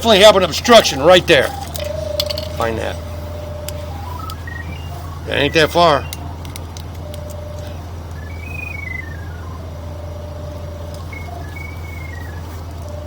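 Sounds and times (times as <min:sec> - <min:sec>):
steady low hum: 0:00.0 - 0:13.0
electronic locator tone: 0:00.1 - 0:13.0.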